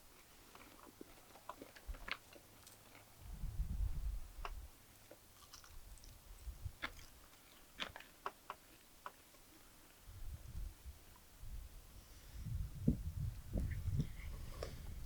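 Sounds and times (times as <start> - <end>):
person chewing crispy food: 0.5 - 3.2, 5.0 - 8.9.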